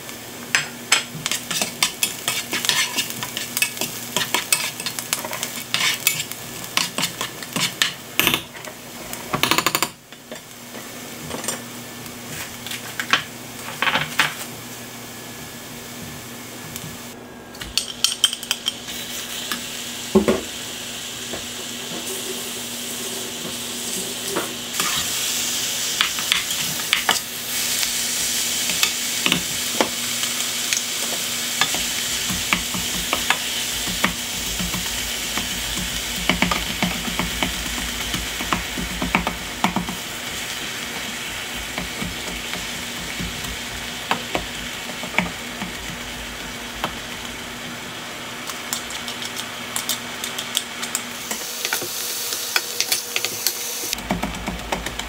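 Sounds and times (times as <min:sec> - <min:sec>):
food sizzling in oil: 0:00.0 - 0:09.3, 0:18.1 - 0:55.0
spatula tapping and scraping pan: 0:00.6 - 0:08.5, 0:31.1 - 0:40.1, 0:41.0 - 0:46.0.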